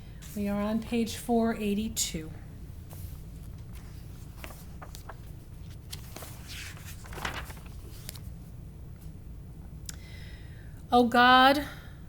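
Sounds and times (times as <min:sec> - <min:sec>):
low steady hum: 0:00.0 - 0:12.0
soft rustle: 0:02.9 - 0:08.3.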